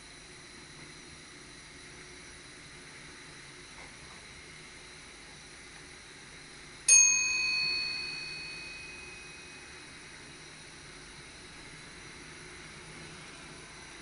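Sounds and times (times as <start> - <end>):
signalling bell ding: 6.9 - 9.9
low hiss of running train: 9.9 - 14.0.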